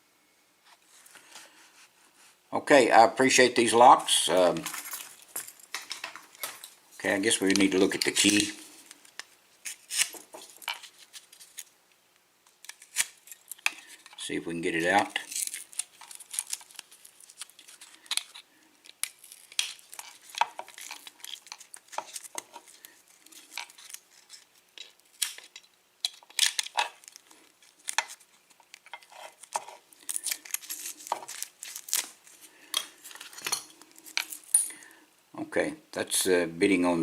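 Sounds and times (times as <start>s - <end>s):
small metal clicks and scrapes: 15.2s - 32.1s.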